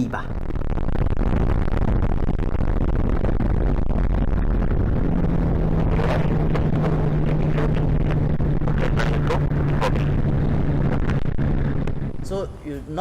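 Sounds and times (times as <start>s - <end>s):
steady low drone: 0.0s - 13.0s
aircraft engine and propeller: 4.9s - 12.9s.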